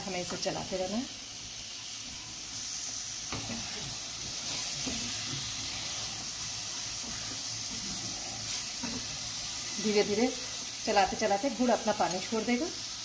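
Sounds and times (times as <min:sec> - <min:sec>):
food sizzling in a pan: 0:00.0 - 0:13.0
spatula scraping: 0:03.3 - 0:09.8.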